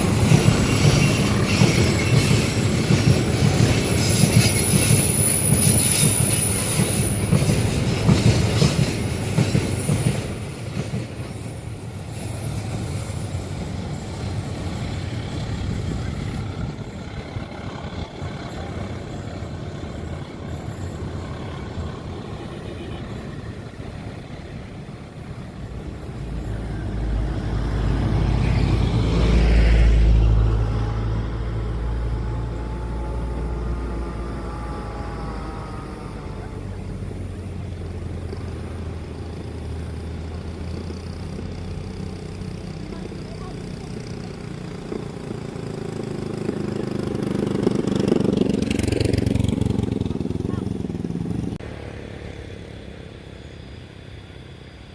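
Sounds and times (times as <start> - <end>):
train rumble: 0.0 - 54.9
train wheels squealing: 0.0 - 54.9.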